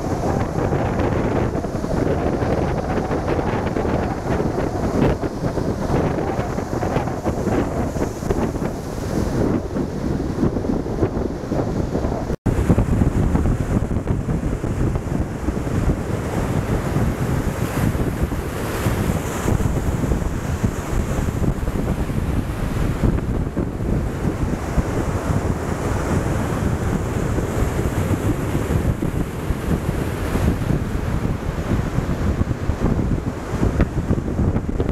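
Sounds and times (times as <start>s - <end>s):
waves breaking on beach: 0.0s - 34.9s
wind buffeting microphone: 0.0s - 34.9s.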